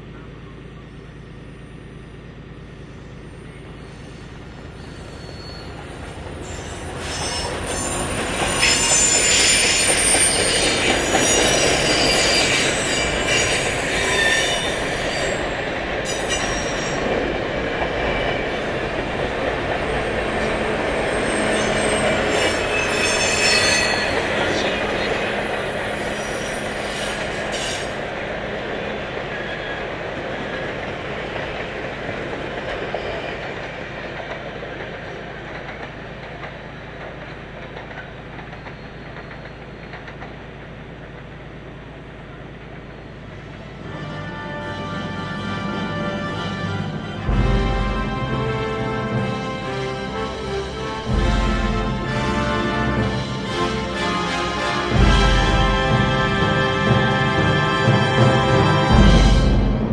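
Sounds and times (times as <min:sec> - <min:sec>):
diesel train passing: 0:00.0 - 0:59.9
steel wheel squeals: 0:02.8 - 0:17.2, 0:20.3 - 0:28.0.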